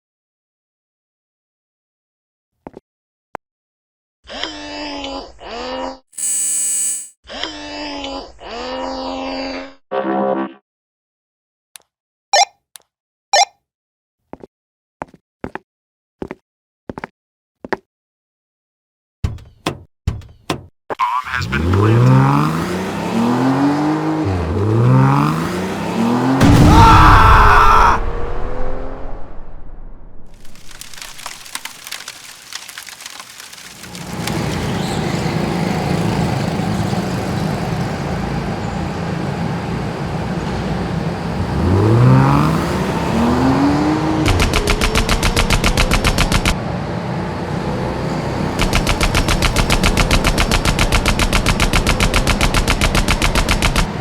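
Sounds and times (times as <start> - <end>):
car engines revving: 21.5 - 26.7, 34.0 - 54.0
loud burst of noise: 26.4 - 31.9
machine-gun fire: 44.3 - 46.6, 48.6 - 53.9.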